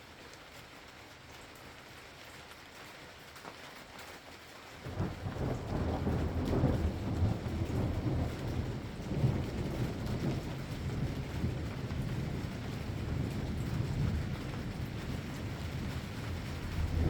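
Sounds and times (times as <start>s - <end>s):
steady rain: 0.0s - 17.0s
thunder rumbling: 4.9s - 17.0s.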